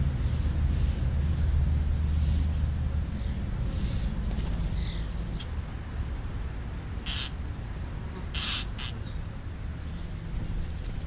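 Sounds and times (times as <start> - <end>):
steady low rumble: 0.0 - 8.1
harsh rasping bird calls: 3.2 - 5.6, 7.0 - 10.1.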